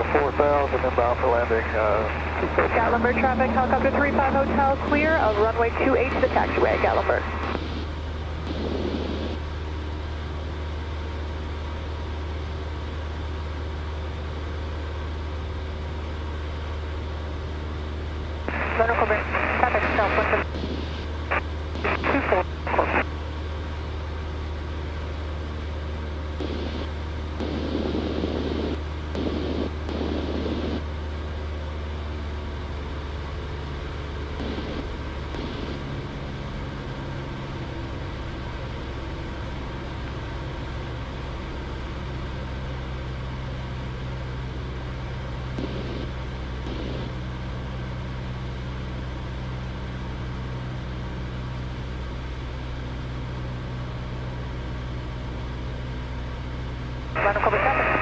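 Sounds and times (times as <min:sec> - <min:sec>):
light aircraft engine droning: 0:00.0 - 0:58.0.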